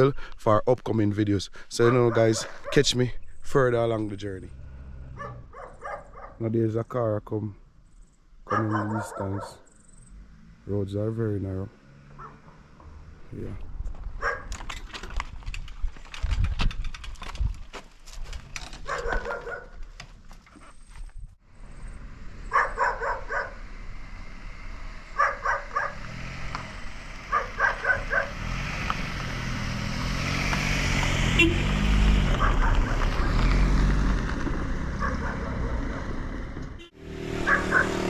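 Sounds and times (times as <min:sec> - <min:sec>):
dog barking: 0:01.8 - 0:02.9, 0:05.2 - 0:06.4, 0:08.5 - 0:09.7, 0:12.2 - 0:12.6, 0:14.2 - 0:14.5, 0:18.8 - 0:19.8, 0:22.5 - 0:23.6, 0:25.2 - 0:26.0, 0:27.3 - 0:28.4, 0:32.3 - 0:33.0, 0:35.0 - 0:35.6, 0:37.4 - 0:38.0
motorcycle engine: 0:03.8 - 0:06.2, 0:09.7 - 0:13.4, 0:21.6 - 0:38.0.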